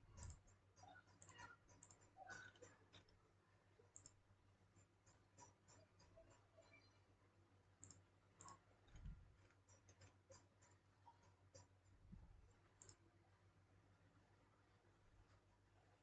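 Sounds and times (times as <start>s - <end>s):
mouse and keyboard clicks: 0.0s - 3.2s, 3.9s - 7.0s, 7.8s - 11.9s, 12.5s - 13.0s
low steady hum: 5.9s - 16.0s.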